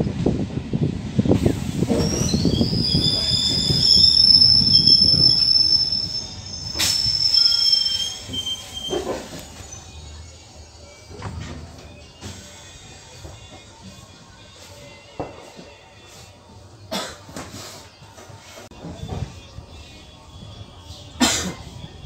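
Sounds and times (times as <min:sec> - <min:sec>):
wheels rumbling on rails: 0:00.0 - 0:13.7
high brake squeal: 0:01.7 - 0:10.2.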